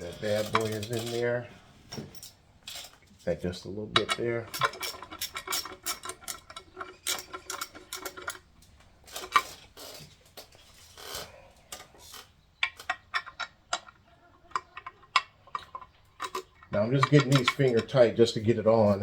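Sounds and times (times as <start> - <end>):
metallic clicking of bolts and tool: 4.0 - 10.0, 11.1 - 18.2.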